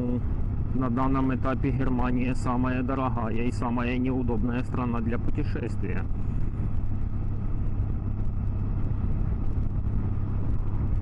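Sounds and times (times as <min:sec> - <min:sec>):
motorcycle engine drone: 0:00.0 - 0:11.0
wind and road noise: 0:00.0 - 0:11.0.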